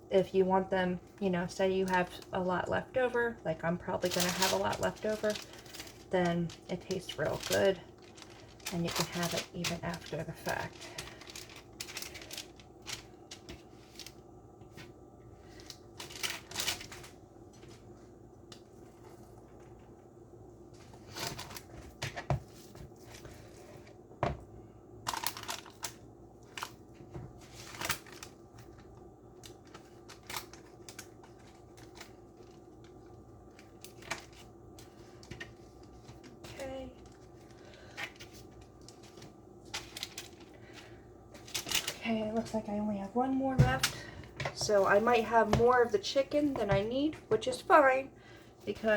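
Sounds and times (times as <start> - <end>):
wrappers rustling: 1.1 - 18.0, 25.0 - 42.5.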